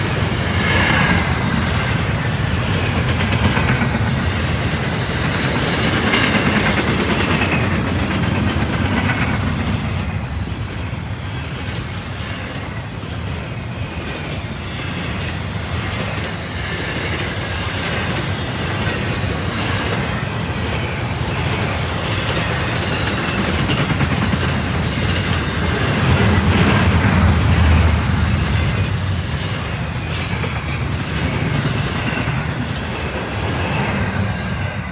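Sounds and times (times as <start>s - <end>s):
freight train wheels rumbling: 0.0s - 34.9s
high wheel squeals: 20.1s - 23.8s, 28.6s - 33.0s.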